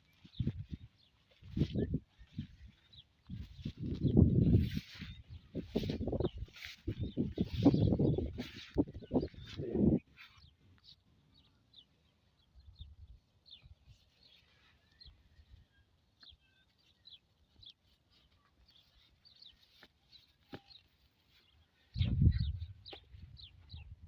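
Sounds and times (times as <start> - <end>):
faint bird chirps: 12.6 - 24.0.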